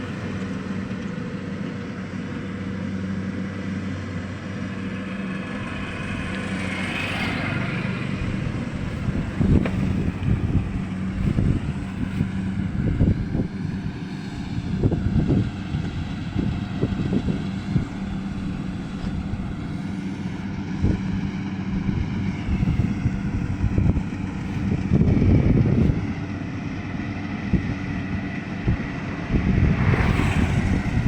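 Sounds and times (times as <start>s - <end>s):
engine running steadily: 0.0s - 31.0s
wind buffeting microphone: 0.0s - 31.0s
low thumps and knocks: 8.4s - 13.6s.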